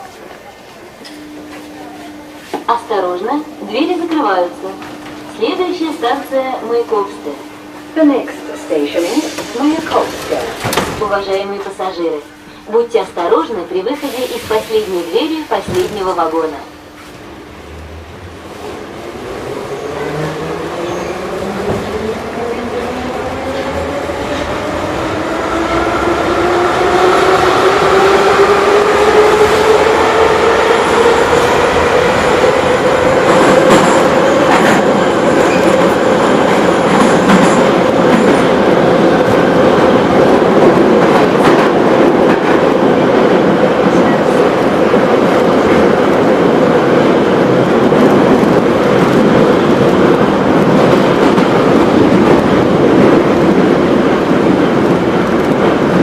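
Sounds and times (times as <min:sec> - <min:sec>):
wheel and rail clickety-clack: 0:36.6 - 0:38.5.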